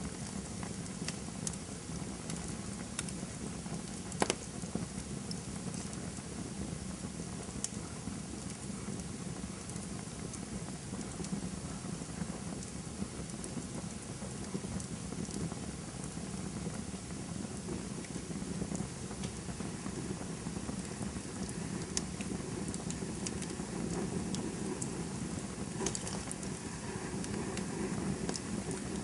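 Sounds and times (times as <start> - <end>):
burning wood crackles and pops: 0.0 - 29.0
campfire flames rushing: 0.0 - 29.0.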